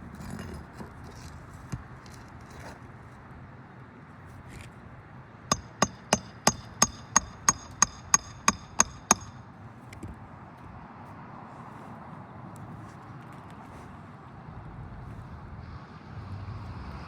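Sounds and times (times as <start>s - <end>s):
hammer striking metal: 5.5s - 9.5s.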